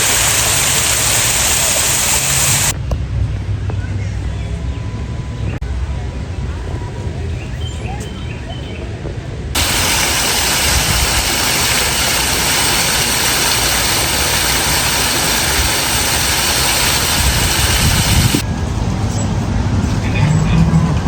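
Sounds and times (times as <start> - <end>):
falling water rushing: 0.0 - 2.8, 9.6 - 18.4.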